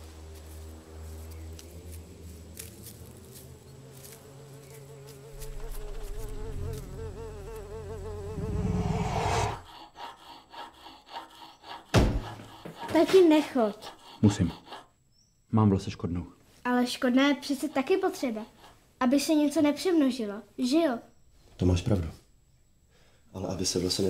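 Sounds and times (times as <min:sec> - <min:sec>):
flying insect buzzing: 0:00.0 - 0:10.1
low rumble: 0:08.3 - 0:09.7.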